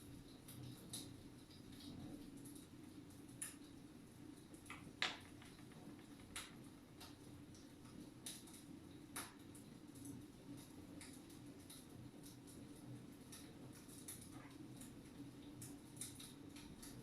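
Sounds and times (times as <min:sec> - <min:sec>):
faint steady hum: 0:00.0 - 0:17.0
wood fire crackling: 0:00.0 - 0:17.0.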